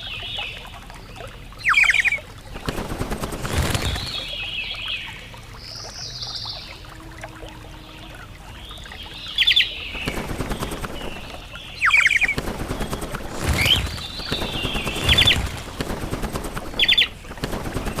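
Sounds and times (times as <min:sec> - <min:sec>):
birds calling in sharp high notes: 0:01.6 - 0:02.2
rough rustling noise: 0:02.6 - 0:04.4, 0:12.4 - 0:18.0.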